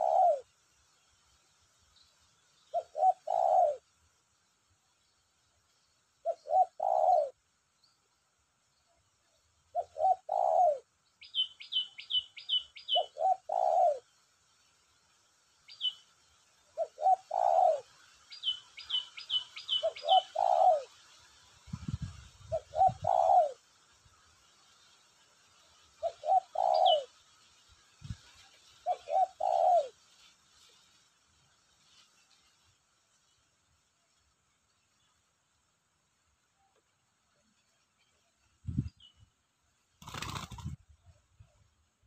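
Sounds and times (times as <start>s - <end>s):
dove cooing: 0.0s - 0.5s, 2.7s - 3.9s, 6.2s - 7.4s, 9.7s - 12.1s, 12.8s - 14.1s, 16.7s - 21.0s, 22.5s - 23.7s, 26.0s - 27.2s, 28.8s - 30.0s, 40.0s - 40.8s
small bird chirping: 8.8s - 14.0s, 15.6s - 21.0s.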